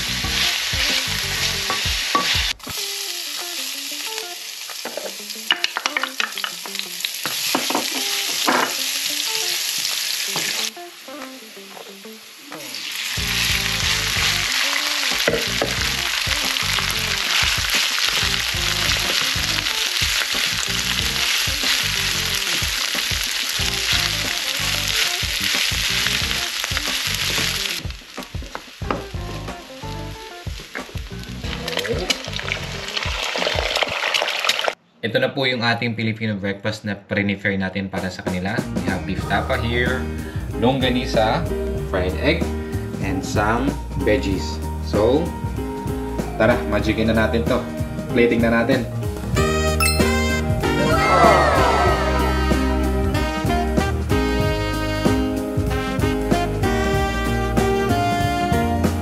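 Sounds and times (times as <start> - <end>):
food sizzling in hot oil: 0.0 - 34.8.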